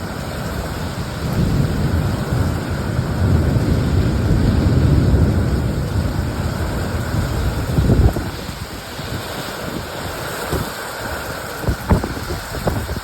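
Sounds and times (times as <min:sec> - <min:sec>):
steady rain: 0:00.0 - 0:13.0
rolling thunder: 0:00.6 - 0:10.8.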